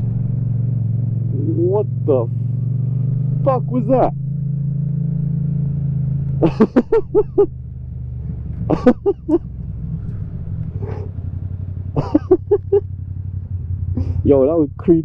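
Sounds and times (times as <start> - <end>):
motorcycle engine running: 0.0 - 15.0
person laughing: 6.4 - 7.5, 8.6 - 9.5, 10.8 - 11.1, 12.0 - 12.8, 14.0 - 14.3.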